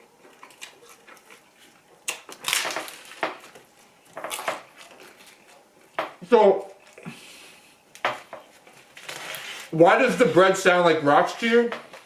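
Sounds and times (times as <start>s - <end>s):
crunching of toasted bread: 0.0s - 6.1s.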